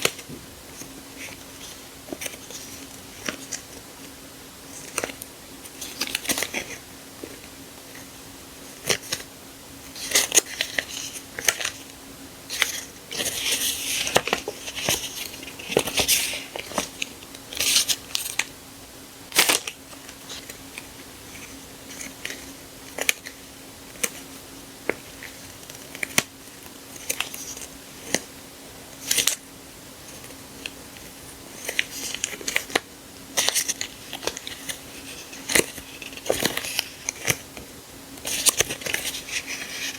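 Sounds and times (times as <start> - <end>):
paper and plastic rustling: 0.0 - 4.1, 12.5 - 18.5, 30.0 - 39.9
faint steady hum: 0.0 - 39.9.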